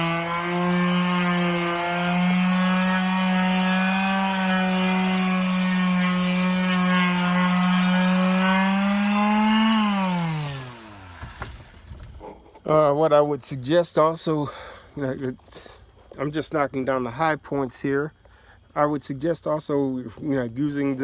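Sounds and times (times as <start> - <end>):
electric palm sander running: 0.0 - 11.9.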